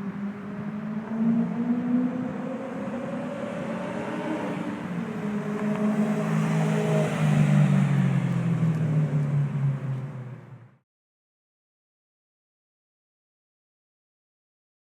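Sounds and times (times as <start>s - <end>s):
car engine through exhaust: 0.0s - 10.7s.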